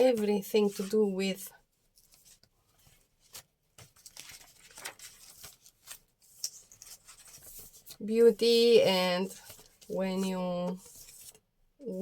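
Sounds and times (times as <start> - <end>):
paper rustling: 1.8 - 11.4.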